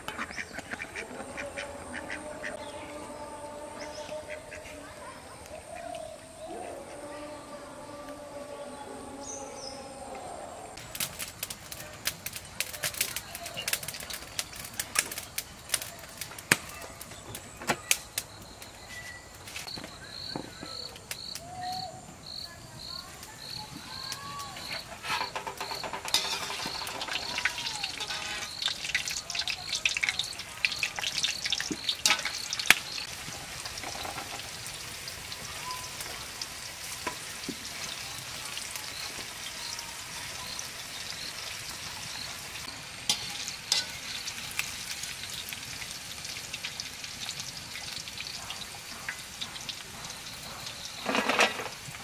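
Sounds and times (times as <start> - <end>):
food deep-frying in oil: 10.8 - 19.8, 22.3 - 52.0
insect chirping: 17.5 - 33.2.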